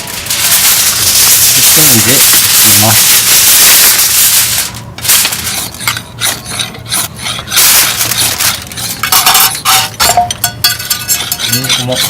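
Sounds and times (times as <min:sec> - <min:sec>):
aluminium foil crinkling: 0:00.0 - 0:06.0, 0:07.6 - 0:10.0.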